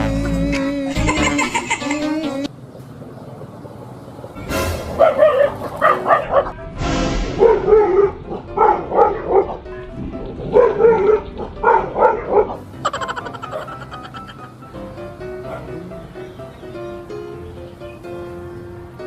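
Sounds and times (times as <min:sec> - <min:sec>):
background music: 0:00.0 - 0:02.5, 0:04.4 - 0:19.0
dog barking: 0:04.9 - 0:06.6, 0:07.4 - 0:12.6, 0:13.5 - 0:13.8, 0:15.4 - 0:16.0.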